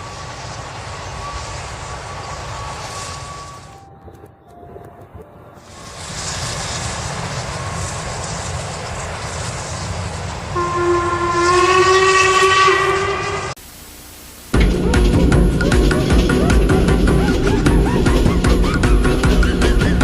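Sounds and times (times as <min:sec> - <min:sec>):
train rumbling past: 0:00.0 - 0:13.6, 0:14.6 - 0:20.0
train horn chord: 0:10.5 - 0:13.6.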